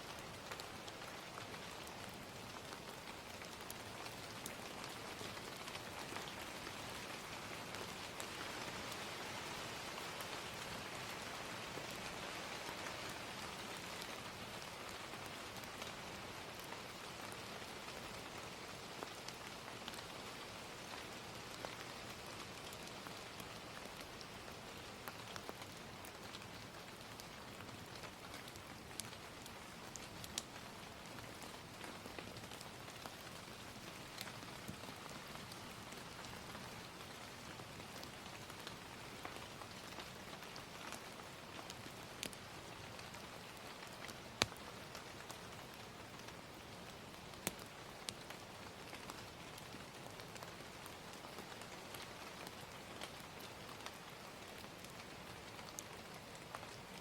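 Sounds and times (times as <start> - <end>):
gentle rain: 0.0 - 57.0
wood fire crackling: 22.6 - 51.8.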